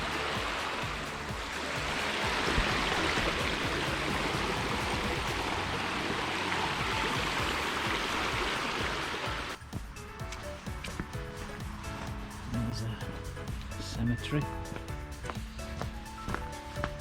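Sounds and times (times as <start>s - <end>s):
stream water rushing: 0.0s - 9.6s
background music: 0.0s - 17.0s.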